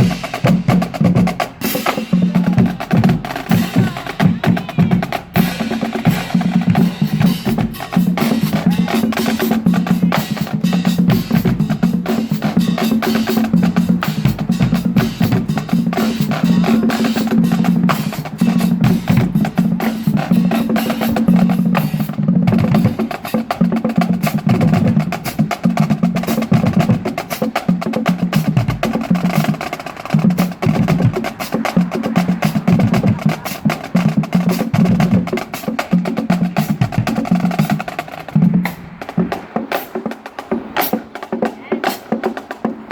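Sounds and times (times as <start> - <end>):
marching band playing: 0.0 - 42.9
snare drum rolls: 0.0 - 42.9.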